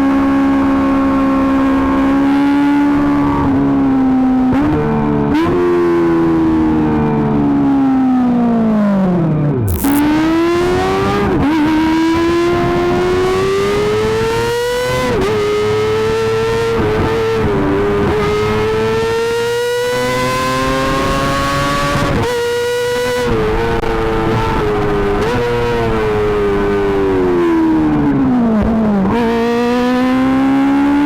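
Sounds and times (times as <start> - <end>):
motorcycle engine at high revs: 9.7 - 10.0.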